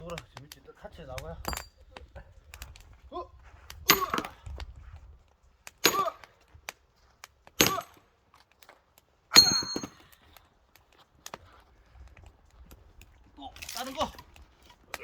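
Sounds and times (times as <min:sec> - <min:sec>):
chopping blows with metallic ring: 0:03.9 - 0:04.4, 0:05.8 - 0:06.3, 0:09.3 - 0:10.1.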